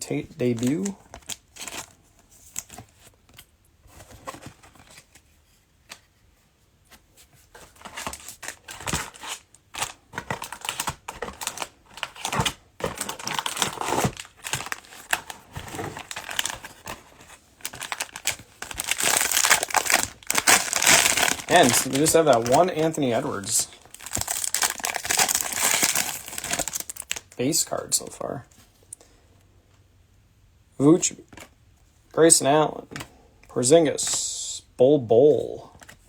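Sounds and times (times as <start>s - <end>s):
trading cards shuffled: 0.4s - 1.8s, 10.2s - 27.2s
cellophane wrapper crinkling: 0.4s - 2.8s, 7.6s - 27.4s.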